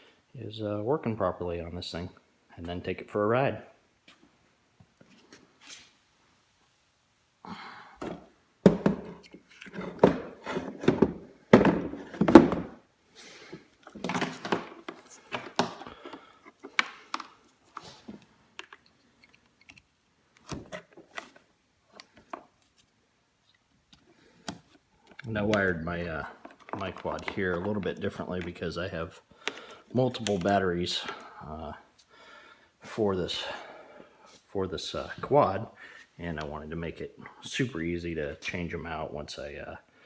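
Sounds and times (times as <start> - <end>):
knocks and clatter of handled parts: 8.0 - 12.8, 13.9 - 17.4, 26.3 - 28.6.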